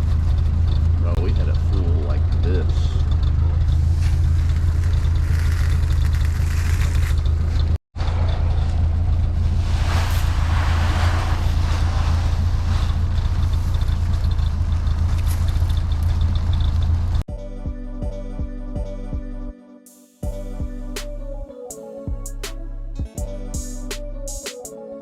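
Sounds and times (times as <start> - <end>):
tractor engine running: 0.0 - 10.8, 11.4 - 17.3.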